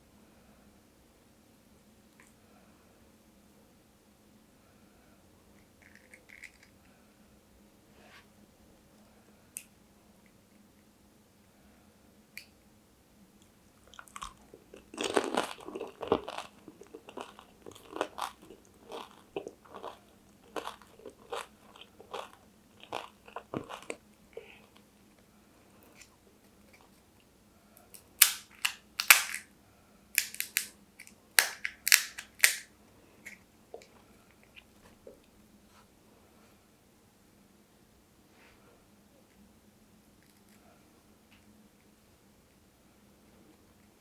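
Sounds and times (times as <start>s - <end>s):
chewing: 13.8s - 25.2s
crisp bite: 28.0s - 29.5s, 30.2s - 32.7s
loud sharp crunches: 30.2s - 30.7s, 31.4s - 32.7s.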